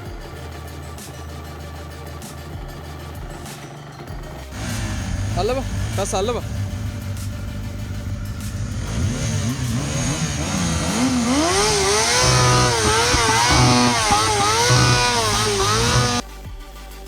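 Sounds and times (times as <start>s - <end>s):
motorcycle engine revving: 3.2s - 16.2s.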